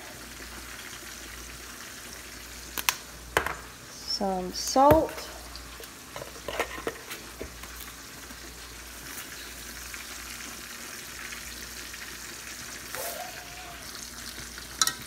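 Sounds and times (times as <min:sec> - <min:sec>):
steak sizzling in oil: 0:07.2 - 0:15.0.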